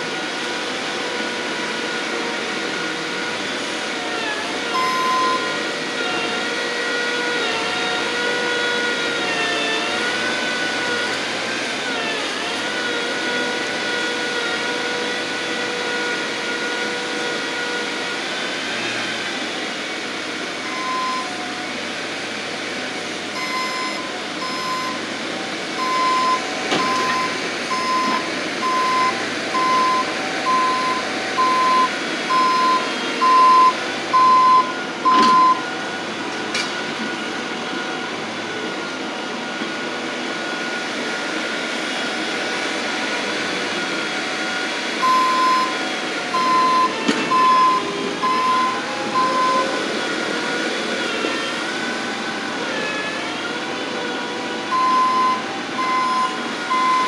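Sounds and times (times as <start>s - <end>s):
loader engine running under load: 0.0s - 57.0s
backup alarm beeping: 25.8s - 35.6s, 45.0s - 49.9s, 54.7s - 57.0s.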